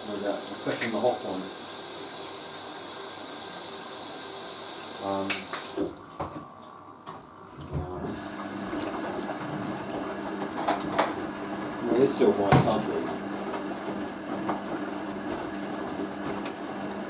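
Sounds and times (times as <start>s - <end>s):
washing machine hum: 0.0s - 17.0s
water rushing into washing machine: 0.0s - 17.0s.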